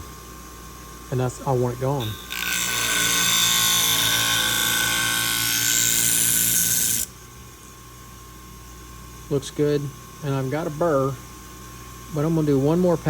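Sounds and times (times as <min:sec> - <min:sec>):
scissor blade grinding on wheel: 0:02.0 - 0:07.1
sharpener motor hum: 0:02.0 - 0:07.2.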